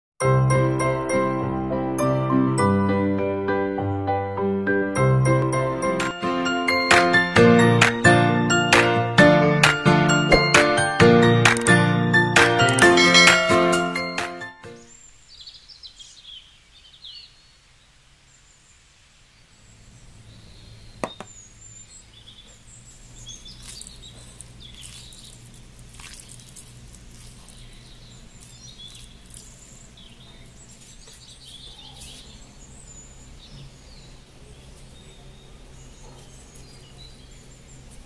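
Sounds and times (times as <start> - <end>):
small birds chirping: 14.8 - 38.0.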